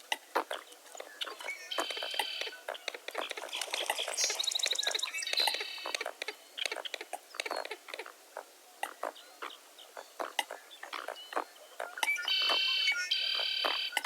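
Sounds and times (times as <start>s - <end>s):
birds chattering and calling: 0.0s - 14.0s
high trilled bird whistles: 1.4s - 2.5s, 12.0s - 14.0s.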